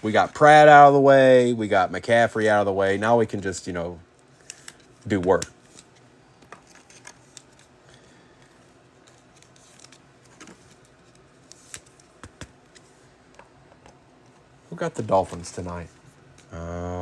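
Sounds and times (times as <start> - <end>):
trading cards clicking and sliding: 4.2 - 16.5.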